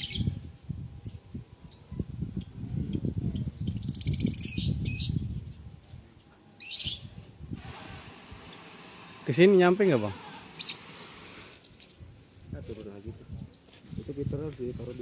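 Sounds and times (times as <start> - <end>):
lovebirds chirping: 0.0 - 7.3, 8.9 - 11.5
lovebirds rattling chatter: 8.9 - 11.7.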